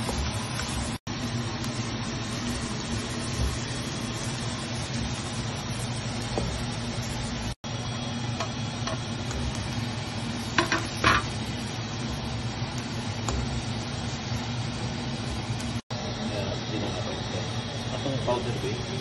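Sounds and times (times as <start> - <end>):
vegetables sizzling in a wok: 0.0 - 19.0
spatula scraping a pan: 10.4 - 11.6
spatula knocking on pan: 10.5 - 11.3.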